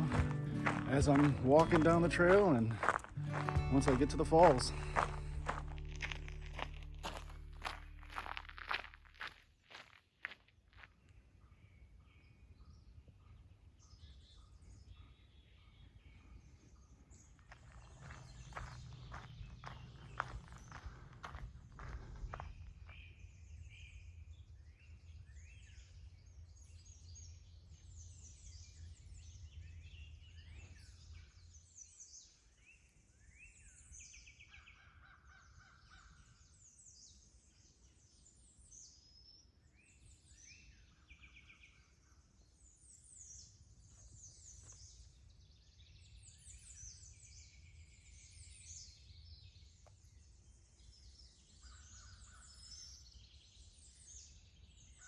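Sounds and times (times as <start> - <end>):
songbirds chirping and trilling: 0.0 - 55.0
low rumble: 4.7 - 9.2.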